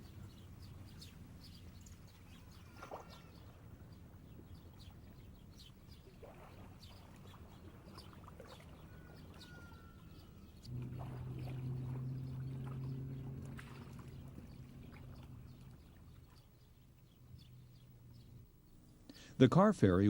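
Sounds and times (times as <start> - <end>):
birds chirping: 0.0 - 20.0
low steady rumble: 10.1 - 20.0
low-pitched ship horn blast: 10.7 - 15.8.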